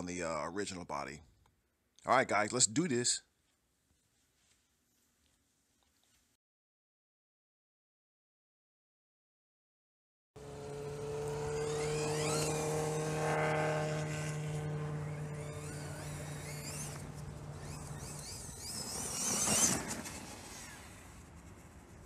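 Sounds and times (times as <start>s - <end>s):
electric motor whining: 10.4s - 21.2s
steady low hum: 10.4s - 22.0s.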